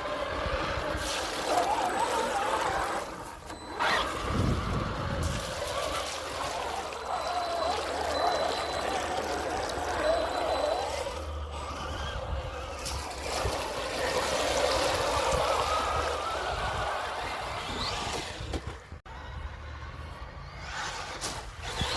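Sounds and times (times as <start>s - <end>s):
low wind rumble: 0.0s - 1.4s, 2.7s - 6.0s, 11.3s - 21.9s
electric motors whining: 0.0s - 21.9s.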